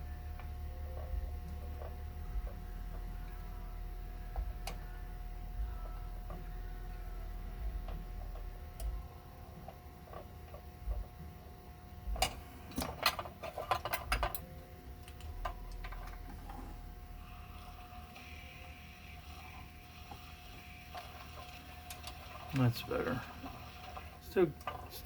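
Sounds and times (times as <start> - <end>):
faint steady hum: 0.0 - 25.0
metal parts clicking and scraping: 12.2 - 16.8.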